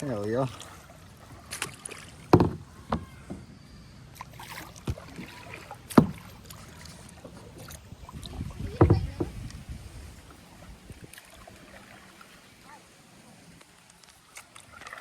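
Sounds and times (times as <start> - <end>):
paddle knocks and splashes: 0.0 - 3.5, 4.2 - 9.7.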